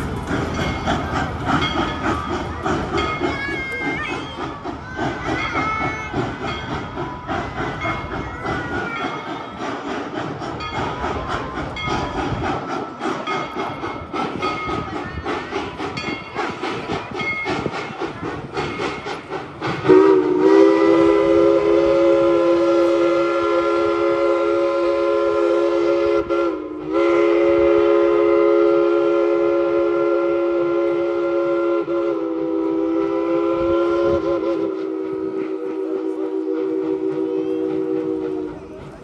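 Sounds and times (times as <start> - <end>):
steam train clattering: 0.0 - 39.0
steam chime whistle: 19.8 - 38.4.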